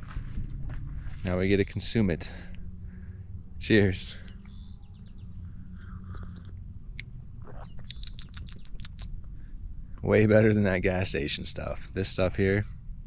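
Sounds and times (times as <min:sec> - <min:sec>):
low steady rumble: 0:00.0 - 0:13.0
small bird high chirps: 0:04.3 - 0:06.5, 0:07.4 - 0:09.1.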